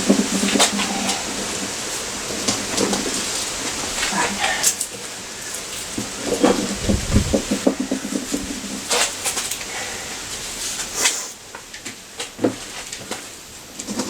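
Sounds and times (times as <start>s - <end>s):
heavy low thud: 6.5s - 8.6s.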